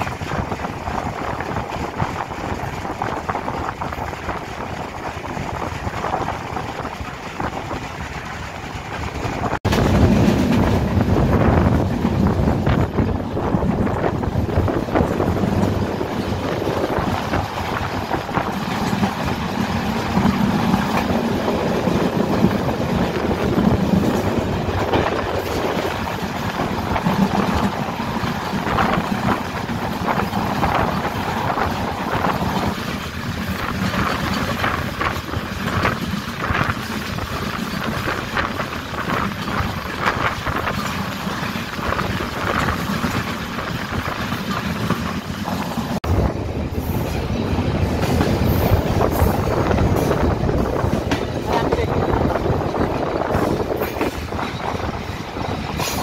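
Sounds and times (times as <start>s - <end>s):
train low hum: 0.0s - 56.0s
wheels clattering over rails: 0.0s - 56.0s.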